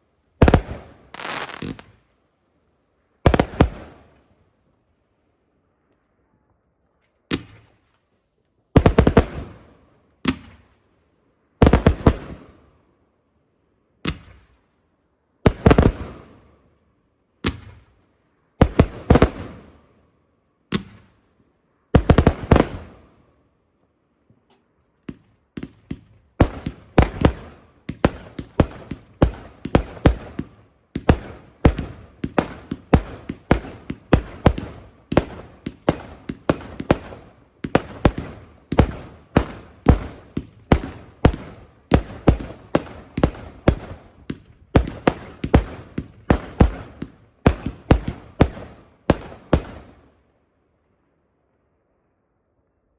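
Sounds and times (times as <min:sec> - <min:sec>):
fireworks bangs with echoes: 0:00.4 - 0:02.0, 0:03.3 - 0:04.0, 0:08.8 - 0:09.6, 0:15.5 - 0:16.4, 0:22.0 - 0:23.0, 0:25.1 - 0:50.0.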